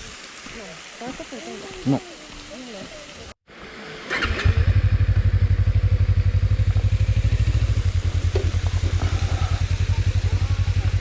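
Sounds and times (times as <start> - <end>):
motorcycle engine low thumping: 4.4 - 11.0.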